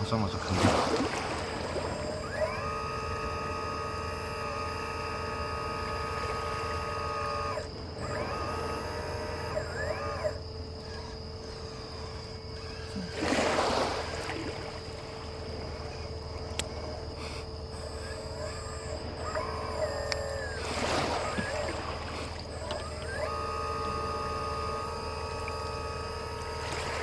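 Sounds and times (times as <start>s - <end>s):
hydraulic pump and motor whining: 0.0s - 27.0s.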